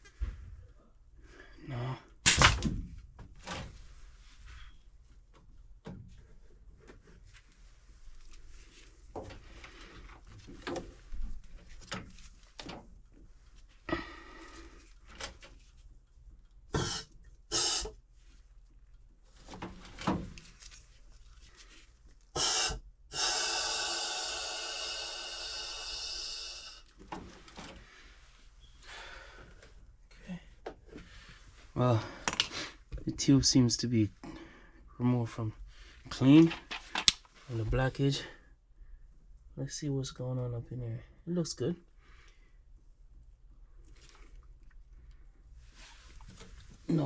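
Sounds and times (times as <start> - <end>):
air blowing through tube: 16.8 - 18.0, 22.3 - 26.9.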